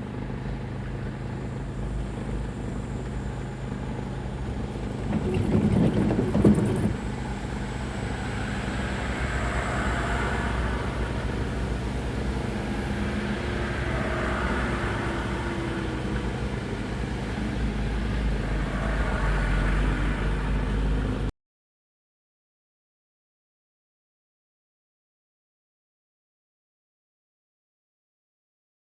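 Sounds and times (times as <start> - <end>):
road noise: 0.0 - 21.3
truck engine running: 0.0 - 21.3
rattling clatter: 4.9 - 7.2.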